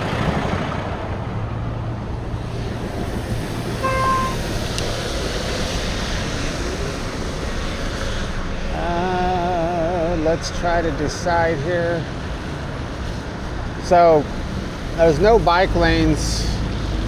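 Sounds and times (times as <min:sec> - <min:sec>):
road and traffic noise: 0:00.0 - 0:17.0
wind rushing over microphone: 0:00.0 - 0:17.0
short beep: 0:03.8 - 0:04.4.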